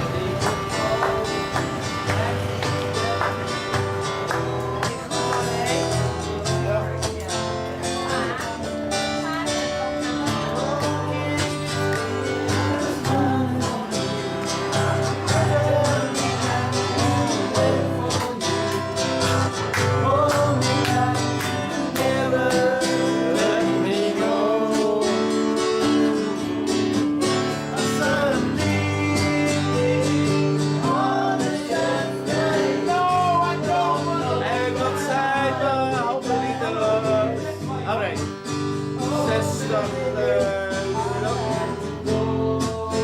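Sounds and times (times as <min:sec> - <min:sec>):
strummed acoustic guitar: 0:00.0 - 0:43.0
person singing: 0:07.9 - 0:37.6, 0:39.0 - 0:43.0.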